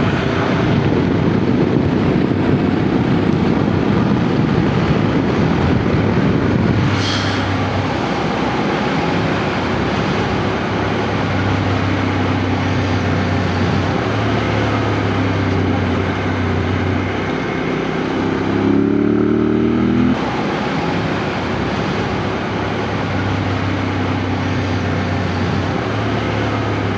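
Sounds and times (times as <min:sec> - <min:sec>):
wind noise: 0:00.0 - 0:26.9
motorcycle engine running: 0:07.6 - 0:26.9.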